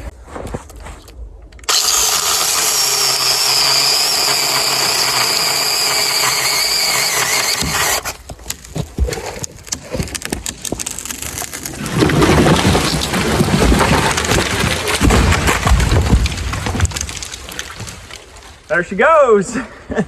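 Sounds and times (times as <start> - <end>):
wood snapping and crackling: 1.4 - 18.7
chainsaw cutting wood: 1.7 - 8.4.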